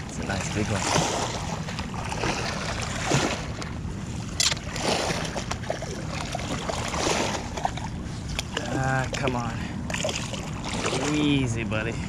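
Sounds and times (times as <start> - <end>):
water splashing around legs: 4.4 - 11.4.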